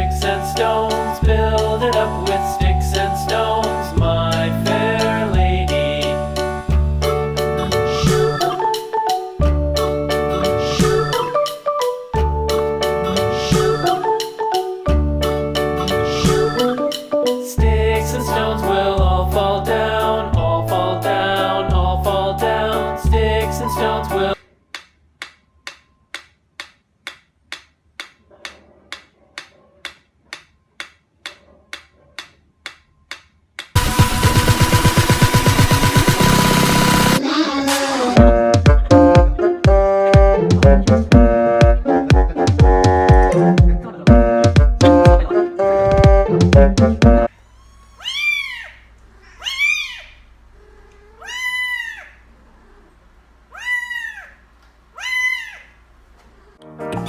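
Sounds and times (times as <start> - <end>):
loud music: 0.0 - 11.5, 12.2 - 17.0, 33.8 - 47.3
cat meowing: 47.4 - 52.9, 53.5 - 54.4, 55.0 - 55.7.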